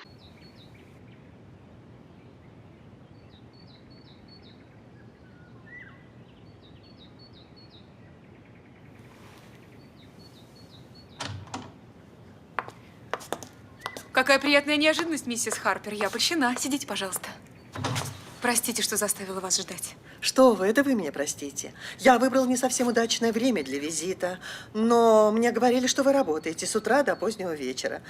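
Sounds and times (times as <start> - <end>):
faint birds chirping: 0.0 - 28.0
background hiss: 8.7 - 24.8.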